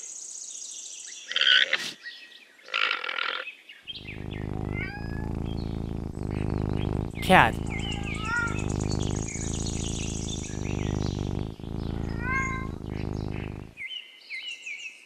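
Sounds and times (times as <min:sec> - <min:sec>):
alpaca calling: 0:04.0 - 0:13.7
alpaca grunting: 0:04.0 - 0:13.7.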